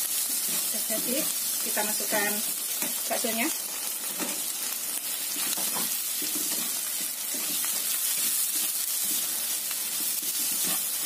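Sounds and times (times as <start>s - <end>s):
food sizzling in a wok: 0.0s - 11.0s
faint stirring scrapes and taps: 5.4s - 10.9s.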